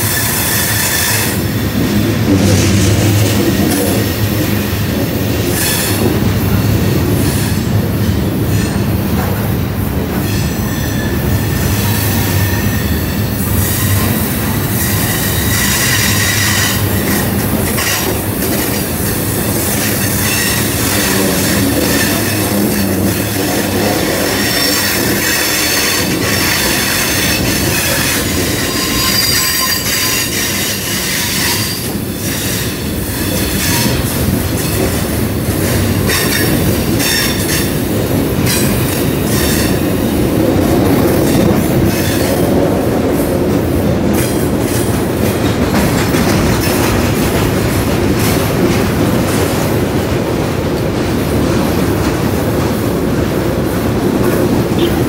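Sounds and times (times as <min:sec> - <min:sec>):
wheels clicking over rail joints: 0:00.0 - 0:55.0
freight cars rumbling past: 0:01.2 - 0:10.2, 0:16.3 - 0:28.6
high-pitched wheel squeal: 0:19.7 - 0:32.6.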